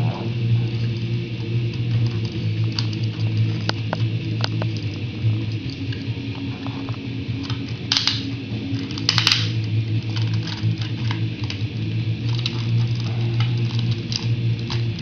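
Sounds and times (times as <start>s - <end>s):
steady low hum: 0.0s - 15.0s
plastic toy parts clicking: 7.4s - 8.3s, 8.9s - 11.6s.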